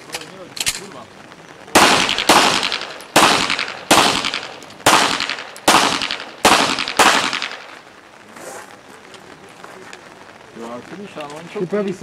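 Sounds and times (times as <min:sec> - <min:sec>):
pistol shots echoing: 0:01.7 - 0:07.8.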